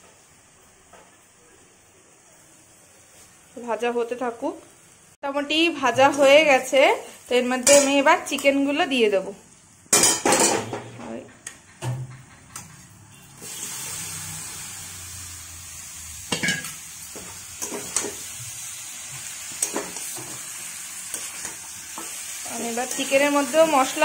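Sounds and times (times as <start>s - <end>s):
chicken sizzling in pot: 13.0s - 24.0s.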